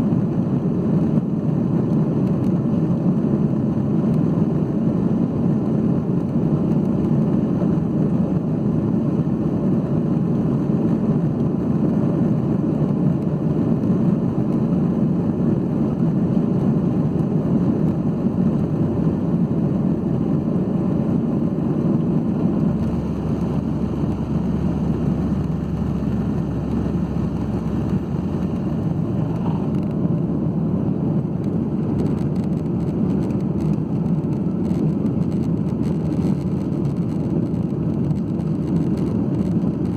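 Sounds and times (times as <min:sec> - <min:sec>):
jet engine cabin rumble: 0:00.0 - 0:39.9
deep low hum: 0:17.9 - 0:30.4.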